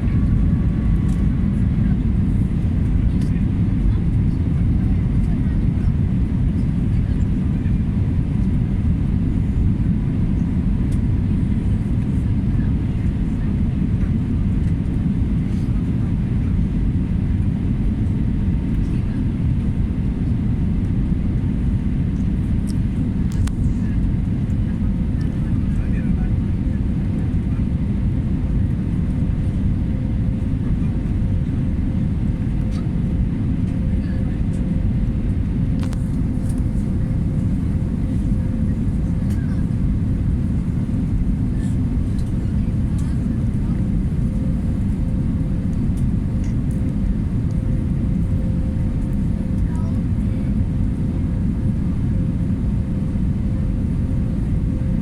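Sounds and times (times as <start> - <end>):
airplane landing rumble: 0.0 - 55.0
faint constant hum: 18.9 - 19.2, 20.2 - 55.0.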